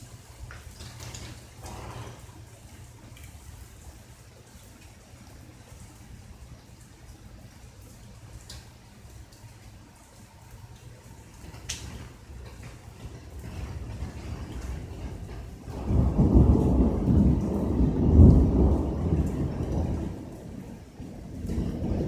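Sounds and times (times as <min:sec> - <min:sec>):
raindrop ticks: 0:00.0 - 0:22.0
rolling thunder: 0:12.0 - 0:22.0.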